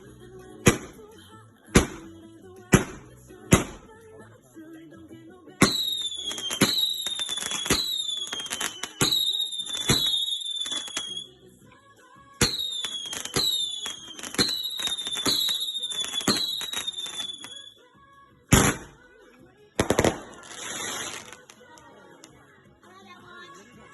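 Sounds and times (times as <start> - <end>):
fireworks bangs: 5.6 - 11.1, 12.4 - 17.6, 18.5 - 19.0, 19.8 - 21.5
falling firework whistle: 5.6 - 11.4, 12.4 - 17.8.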